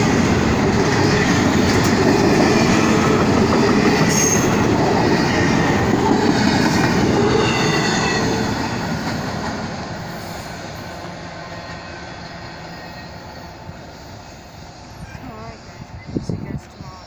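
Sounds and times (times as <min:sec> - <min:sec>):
freight train cars rolling on rails: 0:00.0 - 0:17.0
train wheels squealing: 0:03.6 - 0:05.8, 0:06.4 - 0:09.2, 0:10.0 - 0:17.0.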